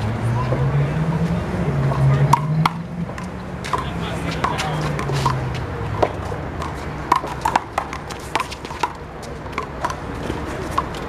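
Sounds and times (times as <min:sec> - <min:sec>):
rubber handball slapping and bouncing: 0:06.0 - 0:11.0.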